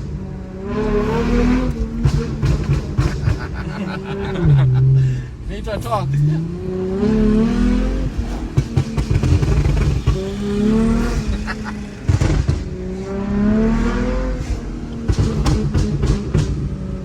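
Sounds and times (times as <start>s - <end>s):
car engine accelerating hard: 0.0s - 5.2s, 5.8s - 17.0s
exhaust cracks: 0.9s - 3.7s, 7.4s - 16.8s.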